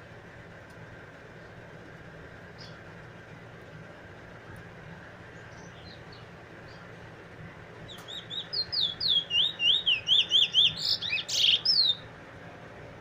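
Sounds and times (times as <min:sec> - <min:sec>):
bird singing slurred whistles: 0:07.9 - 0:12.0.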